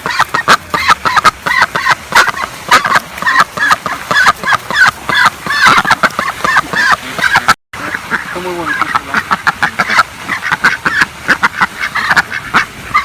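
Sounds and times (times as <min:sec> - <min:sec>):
domestic fowl calling: 0:00.0 - 0:13.0.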